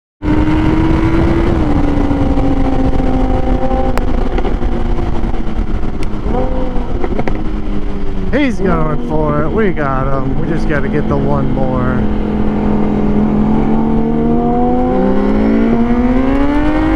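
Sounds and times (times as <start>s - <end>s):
motorcycle engine at high revs: 0.2s - 16.9s
wind rush: 0.2s - 16.9s.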